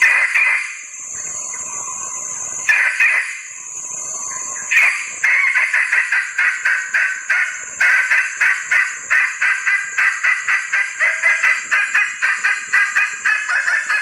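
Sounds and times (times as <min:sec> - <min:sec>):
junglefowl hen calling: 0:00.0 - 0:00.8, 0:02.7 - 0:03.5, 0:04.7 - 0:14.0
high insect drone: 0:00.0 - 0:14.0.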